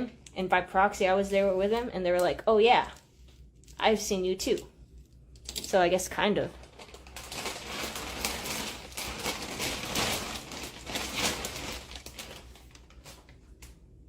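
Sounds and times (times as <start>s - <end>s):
plastic bag rustling and crinkling: 6.4s - 13.6s.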